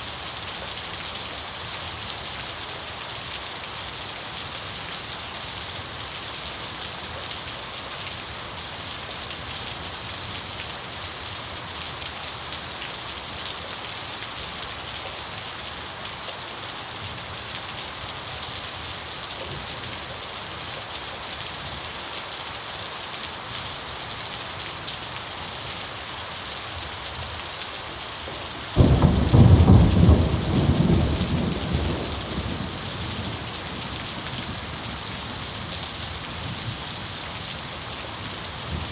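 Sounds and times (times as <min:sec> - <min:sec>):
steady rain falling: 0:00.0 - 0:38.9
thunder rumbling: 0:28.7 - 0:33.9.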